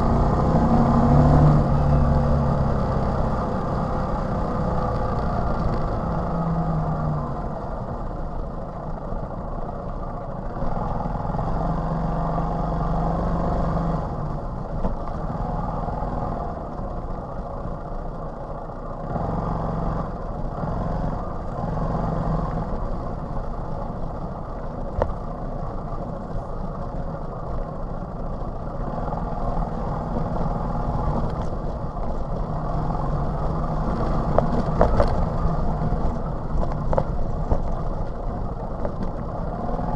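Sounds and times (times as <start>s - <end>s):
moped engine running: 20.1s - 39.9s.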